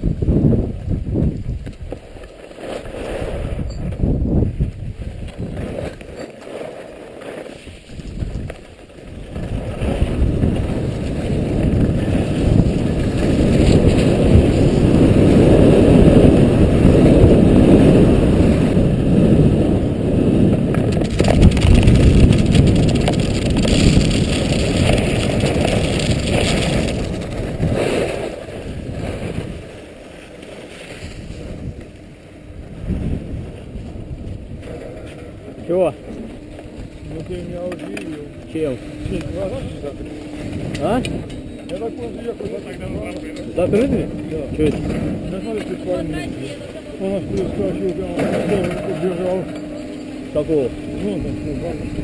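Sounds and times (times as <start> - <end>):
wind buffeting microphone: 0.0 - 2.2, 2.8 - 6.2, 7.7 - 30.0, 31.0 - 52.0
skis running on snow: 1.8 - 3.6, 4.5 - 32.0.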